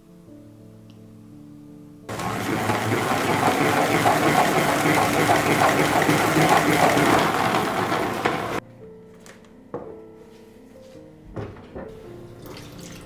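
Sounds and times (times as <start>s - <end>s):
electric blender running: 2.1s - 8.6s.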